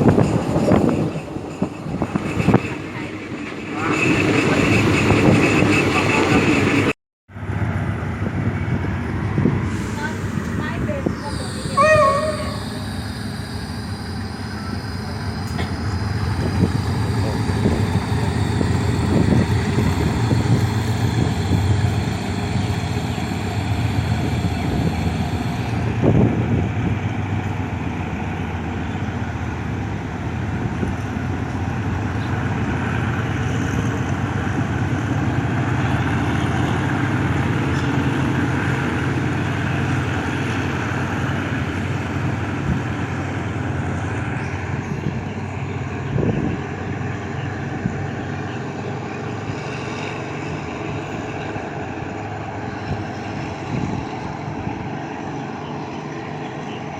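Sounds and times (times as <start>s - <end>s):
faint high whine: 10.0s - 26.4s.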